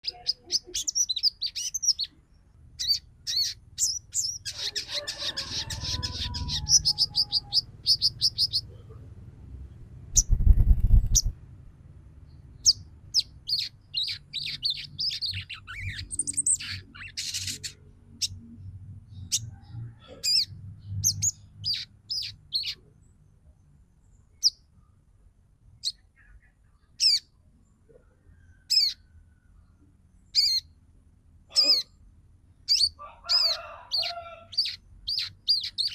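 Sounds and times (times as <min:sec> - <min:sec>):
bird chattering in high chirps: 0:00.0 - 0:02.2, 0:02.8 - 0:08.8, 0:10.2 - 0:11.3, 0:12.6 - 0:18.4, 0:20.1 - 0:22.8, 0:25.8 - 0:27.3, 0:28.6 - 0:29.0, 0:30.3 - 0:30.7, 0:32.7 - 0:35.9.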